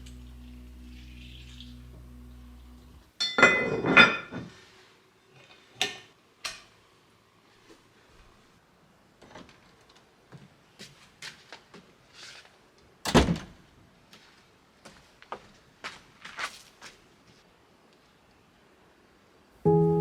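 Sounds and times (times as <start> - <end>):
kitchenware clattering: 3.2 - 4.6, 5.4 - 6.7.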